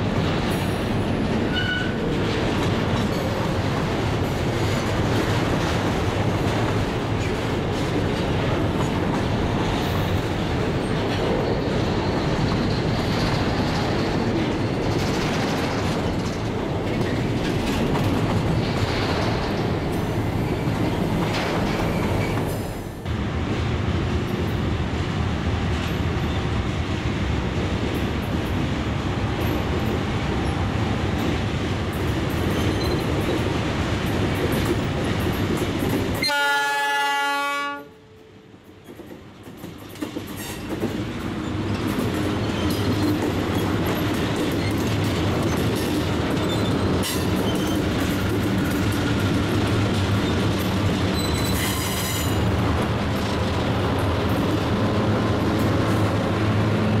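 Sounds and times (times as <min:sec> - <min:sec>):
train wagons clickety-clack: 0:00.0 - 0:57.0
train air horn blast: 0:36.2 - 0:38.1
locomotive engines rumbling: 0:39.7 - 0:57.0.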